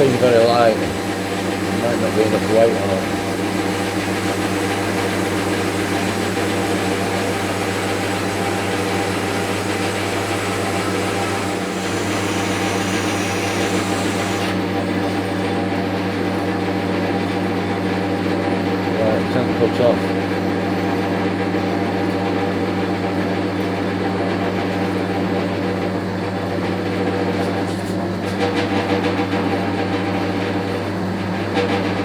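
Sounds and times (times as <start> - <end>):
blade hissing through metal: 0.0 - 14.6
bandsaw motor hum: 0.0 - 15.6.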